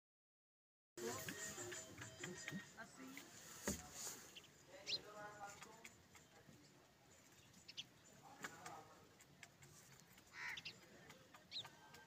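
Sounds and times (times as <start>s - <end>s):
faint bird chirps: 4.2s - 8.4s.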